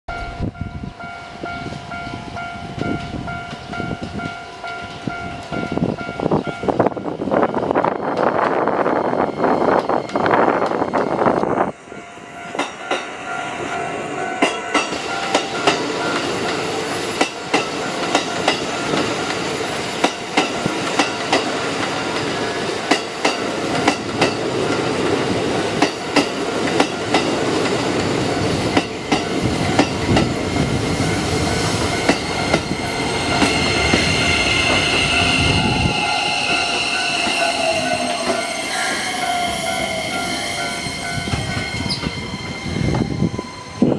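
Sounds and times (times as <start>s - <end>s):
train wheels clicking over rail joints: 14.4s - 39.7s
wheel and brake squeal: 32.2s - 43.9s.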